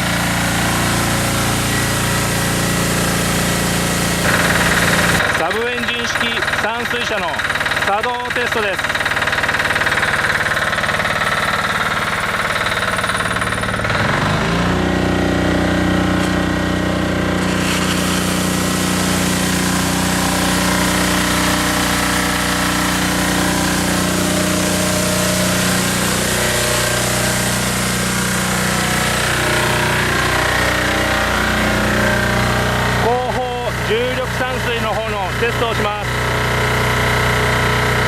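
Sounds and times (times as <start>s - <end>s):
pressurised water spraying hiss: 0.0s - 5.2s, 17.4s - 29.3s
diesel engine running: 0.0s - 38.0s
water pump engine: 0.0s - 38.0s.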